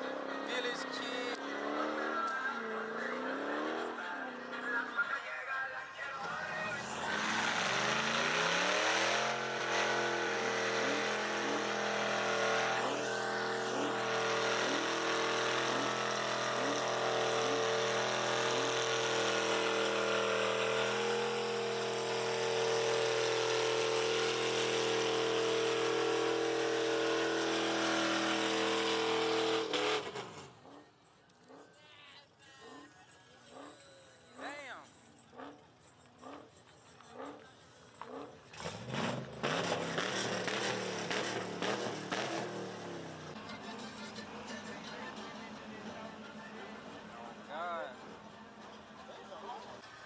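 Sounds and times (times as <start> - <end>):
car engine revving: 0.0 - 5.0, 6.2 - 30.8, 37.1 - 43.6.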